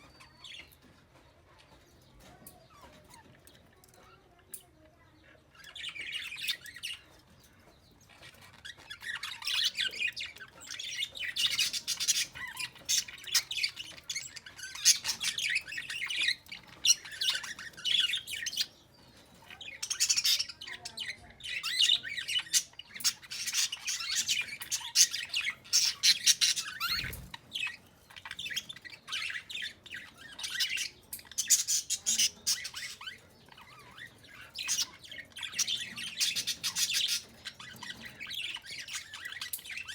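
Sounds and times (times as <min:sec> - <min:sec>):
bird rapid harsh chirps: 0:19.8 - 0:33.3.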